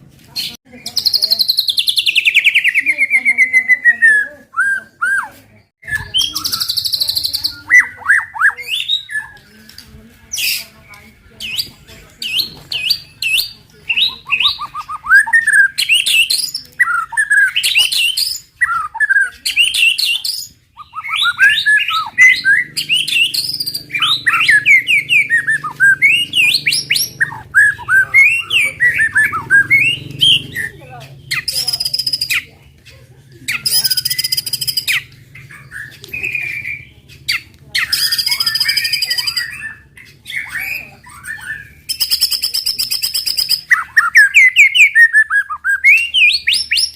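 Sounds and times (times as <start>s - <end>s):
bird singing whistled phrases: 0.8s - 9.6s, 11.4s - 32.5s, 33.5s - 46.9s
bird buzzy rattling phrases: 5.8s - 45.3s.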